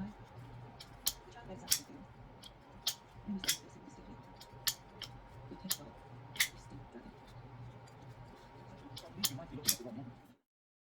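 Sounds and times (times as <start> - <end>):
low steady hum: 0.0 - 10.4
folding knife metallic clicks: 0.8 - 3.7, 5.7 - 6.6, 9.0 - 9.9.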